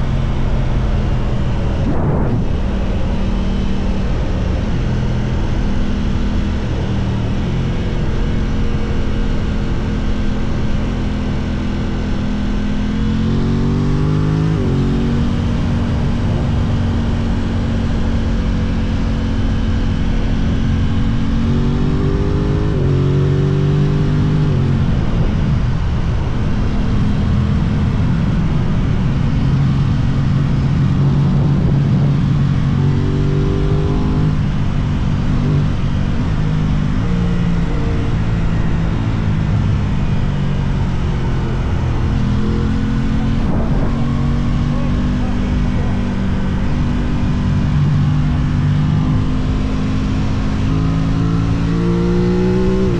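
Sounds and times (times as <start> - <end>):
wind rush: 0.0 - 8.2, 39.2 - 48.5
motorcycle engine revving: 0.0 - 52.9.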